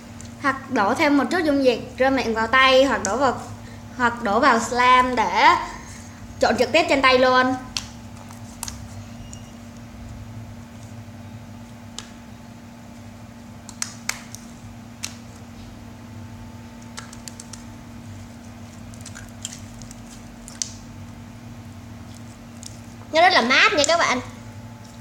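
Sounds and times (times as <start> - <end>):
steady low hum: 0.0 - 25.0
slime squelching by hand: 6.6 - 11.0, 16.8 - 21.2, 21.8 - 24.2.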